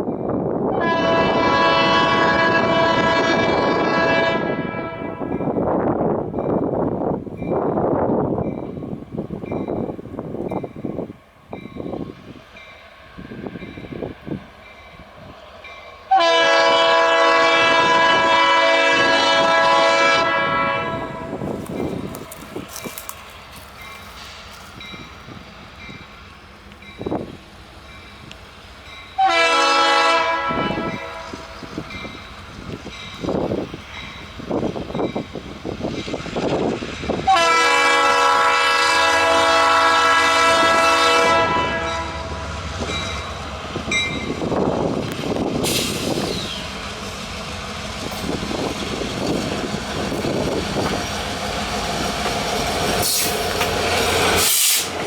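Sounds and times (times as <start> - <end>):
locomotive air horn blasts: 0.7 - 5.4, 16.1 - 21.5, 29.2 - 31.5, 37.3 - 42.5
train wheels clacking over rail joints: 42.8 - 55.0.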